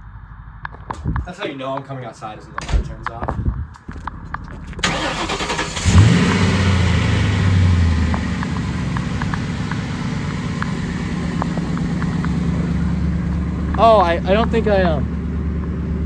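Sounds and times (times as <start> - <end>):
engine cranking: 4.8 - 15.2
engine starting and idling: 4.8 - 15.2.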